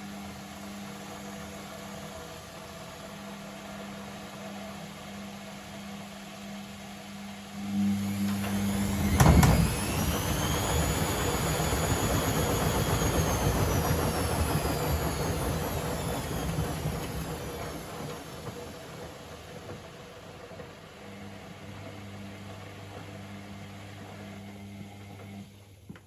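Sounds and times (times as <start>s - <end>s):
washing machine drum motor whining: 7.6s - 25.6s.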